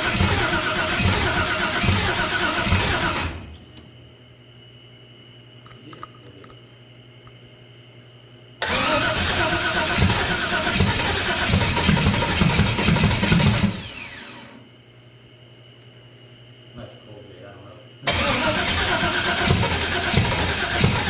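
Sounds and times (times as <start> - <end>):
engine starter cranking: 0.0 - 3.4, 8.6 - 14.4, 18.1 - 21.0
starter whine: 0.0 - 3.9, 8.6 - 14.7, 18.0 - 21.0.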